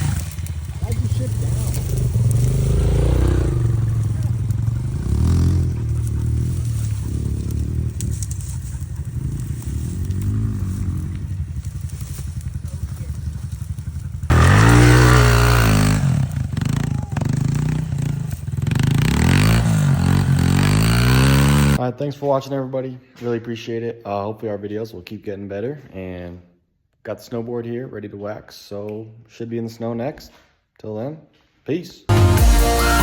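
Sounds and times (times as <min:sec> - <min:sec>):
pit bike engine revving: 0:00.0 - 0:21.8.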